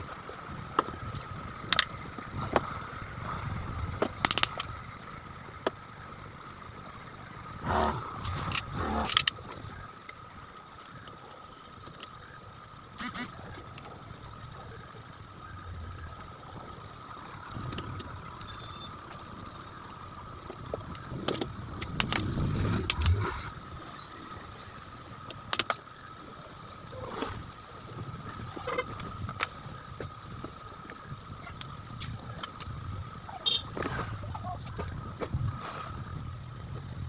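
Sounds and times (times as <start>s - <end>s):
clicks and knocks of fan parts: 3.9s - 4.8s, 20.6s - 23.2s, 25.2s - 25.9s.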